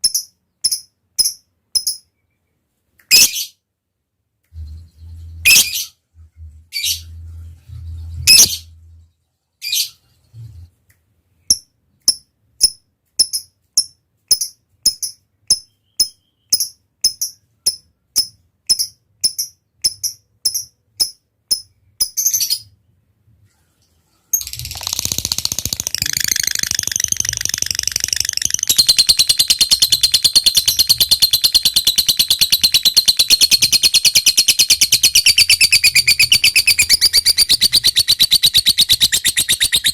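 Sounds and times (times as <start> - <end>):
bird ticking chirps: 0.0 - 2.2, 11.5 - 22.4, 24.4 - 39.9
bird rapid chattering trill: 24.4 - 39.9.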